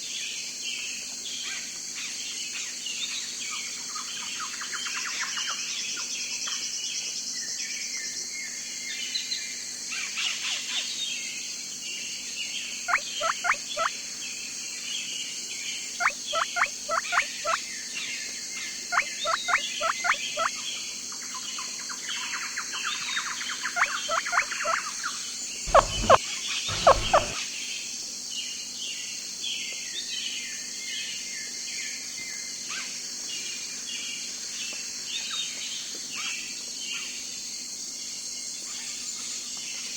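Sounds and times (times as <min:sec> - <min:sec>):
birds calling and chirping: 0:25.7 - 0:27.4
loud full bird calls: 0:25.7 - 0:27.4.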